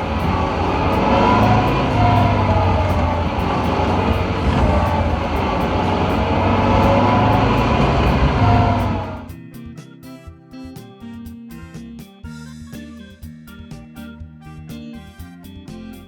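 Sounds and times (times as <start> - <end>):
truck engine running: 0.0 - 9.3
background music with beat: 0.0 - 16.0.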